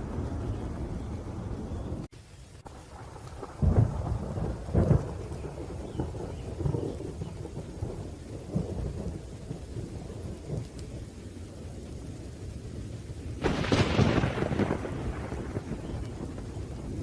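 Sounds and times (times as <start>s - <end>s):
rain: 0.0s - 17.0s
rolling thunder rumbles: 0.0s - 17.0s
sharp thunderclap: 2.8s - 10.9s, 13.4s - 17.0s.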